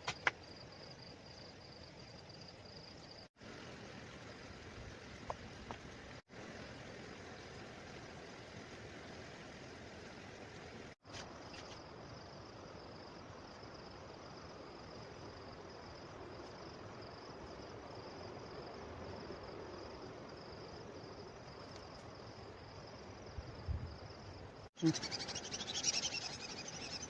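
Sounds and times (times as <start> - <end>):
insects trilling: 11.2 - 27.0.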